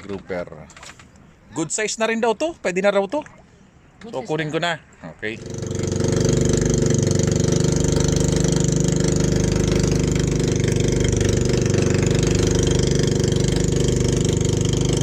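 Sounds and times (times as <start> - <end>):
small boat engine chugging: 5.3 - 15.0.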